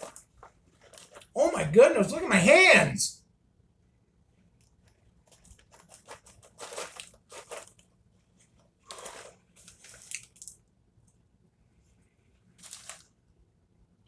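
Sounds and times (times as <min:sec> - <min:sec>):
popcorn crunching: 0:00.8 - 0:02.1, 0:05.3 - 0:07.9, 0:08.8 - 0:10.6, 0:12.6 - 0:13.0.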